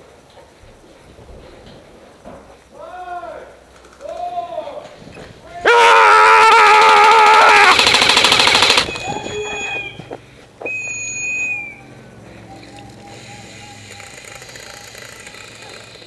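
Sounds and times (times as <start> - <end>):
airsoft gun full-auto burst: 6.3 - 10.0
brief high tones: 8.9 - 14.4.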